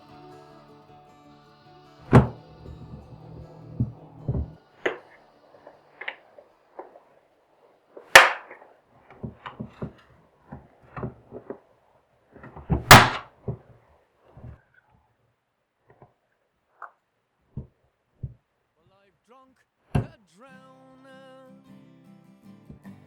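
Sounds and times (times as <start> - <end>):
plastic clips snapping loose: 8.1 - 8.6.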